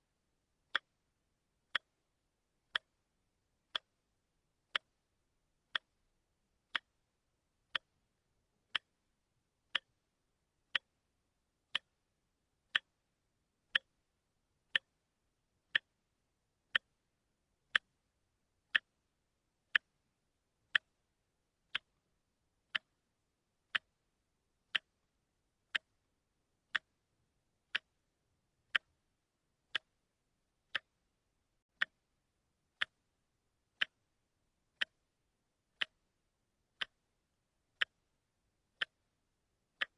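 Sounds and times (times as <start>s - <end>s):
watch ticking: 0.6s - 1.0s, 1.7s - 3.0s, 3.6s - 4.0s, 4.6s - 8.0s, 8.6s - 10.0s, 10.7s - 11.0s, 11.7s - 12.0s, 12.7s - 14.0s, 14.7s - 15.0s, 15.7s - 16.0s, 16.7s - 17.1s, 17.7s - 18.0s, 18.7s - 19.1s, 19.7s - 20.0s, 20.7s - 21.1s, 21.7s - 22.0s, 22.6s - 27.1s, 27.7s - 39.9s.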